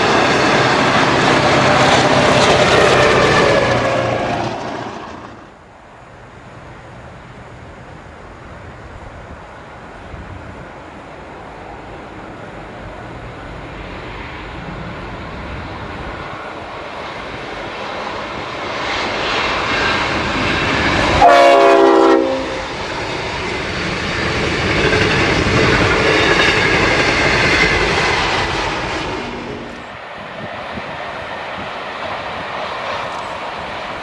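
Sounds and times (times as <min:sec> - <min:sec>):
train carriages rumbling past: 0:00.0 - 0:34.0
locomotive horn chord: 0:21.2 - 0:22.7.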